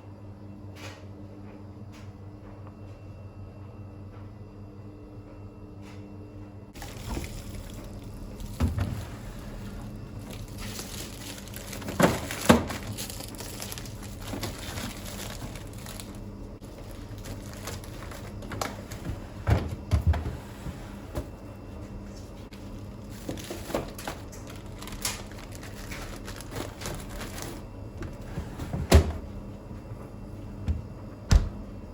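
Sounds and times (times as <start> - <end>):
crinkling: 6.8 - 8.6, 9.4 - 19.0, 22.5 - 27.6.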